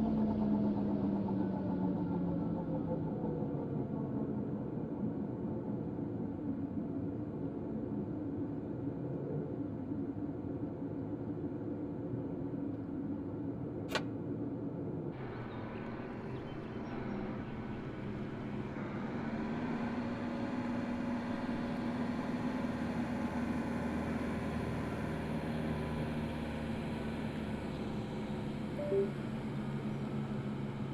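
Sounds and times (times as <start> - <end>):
helicopter engine and rotor drone: 15.2 - 30.9.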